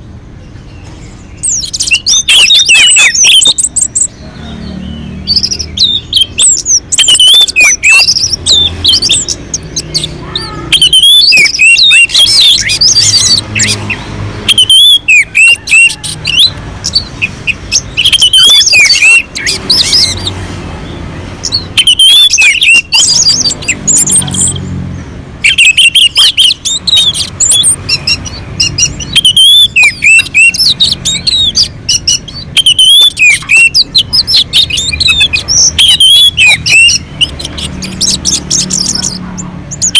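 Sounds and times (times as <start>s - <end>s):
thrush singing: 0.8s - 39.9s.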